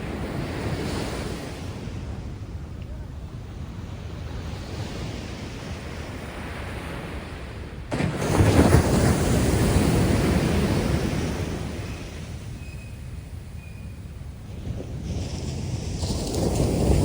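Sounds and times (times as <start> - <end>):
sea waves washing: 0.0 - 17.0
large wave breaking on shore: 6.4 - 12.5, 14.8 - 17.0.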